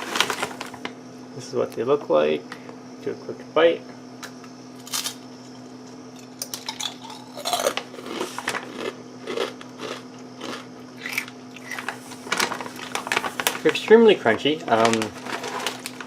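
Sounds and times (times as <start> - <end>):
chewing crunchy potato chips: 5.9 - 13.8.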